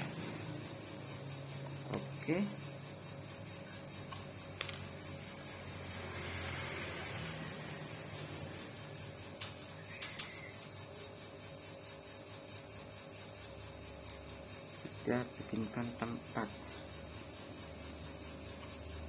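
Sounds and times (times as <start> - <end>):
low mechanical hum: 0.0 - 19.0
small parts clicking: 4.1 - 5.0.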